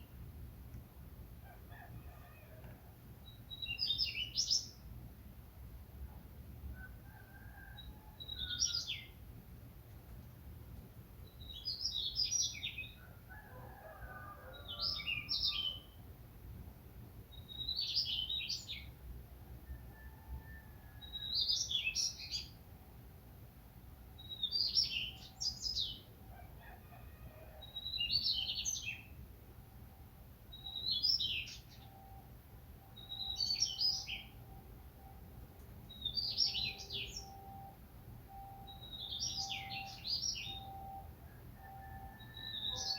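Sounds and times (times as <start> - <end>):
songbird chirping: 3.2 - 4.9, 7.2 - 9.2, 11.2 - 16.1, 17.3 - 19.0, 20.8 - 22.6, 24.2 - 26.1, 27.6 - 42.9.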